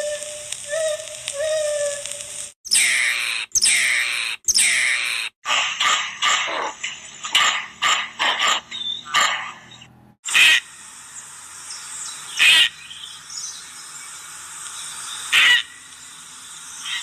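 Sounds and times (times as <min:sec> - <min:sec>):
steady high hiss: 0:00.0 - 0:04.9, 0:10.3 - 0:17.0
animal calling: 0:00.0 - 0:10.6.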